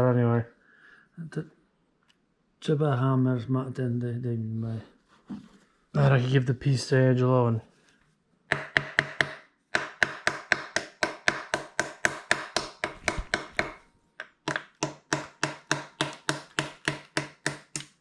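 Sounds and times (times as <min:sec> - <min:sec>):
hammer tapping on metal: 0:08.5 - 0:17.9.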